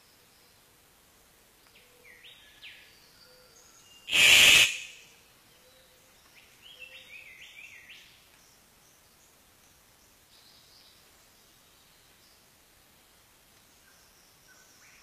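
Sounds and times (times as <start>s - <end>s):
loud harsh burst: 4.1s - 5.0s.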